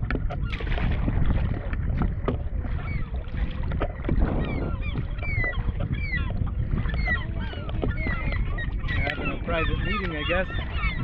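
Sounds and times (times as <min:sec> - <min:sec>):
waterbirds calling: 0:00.0 - 0:11.0
wind rumble on microphone: 0:00.0 - 0:11.0.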